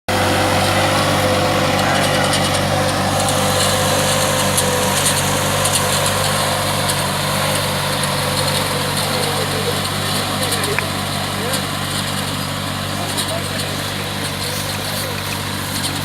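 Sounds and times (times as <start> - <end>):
tractor diesel engine running: 0.1 - 16.0.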